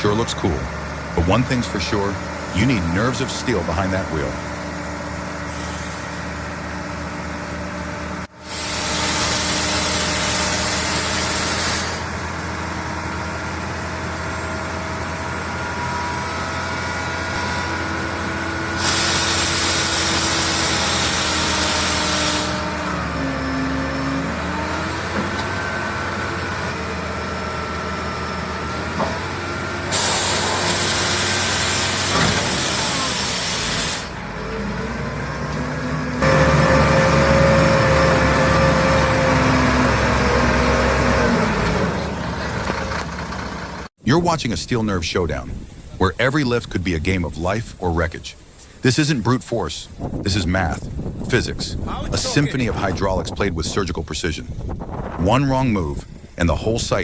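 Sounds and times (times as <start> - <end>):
heavy diesel engine running: 0.0 - 44.0
loud hissing: 5.3 - 6.6, 8.3 - 12.2, 18.6 - 24.6, 29.8 - 34.4.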